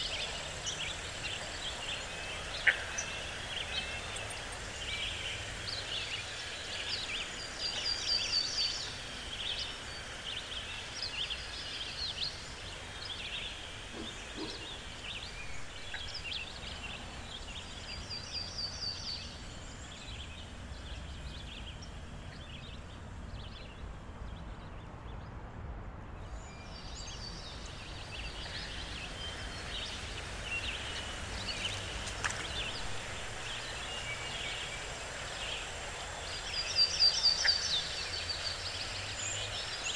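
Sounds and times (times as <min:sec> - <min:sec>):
low background noise: 0:00.0 - 0:39.9
birds chirping and trilling: 0:26.4 - 0:39.9.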